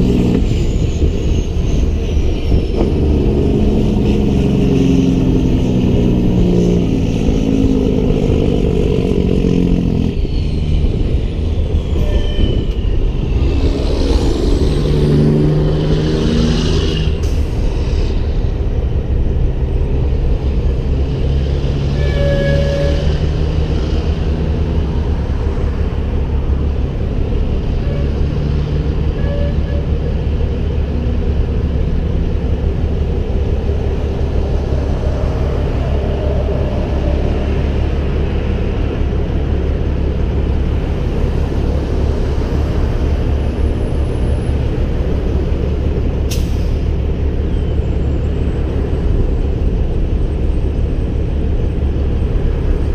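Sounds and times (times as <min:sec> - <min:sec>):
diesel engine droning: 0:00.0 - 0:52.9
faint squeal: 0:09.2 - 0:14.8, 0:21.9 - 0:23.2, 0:29.1 - 0:30.2.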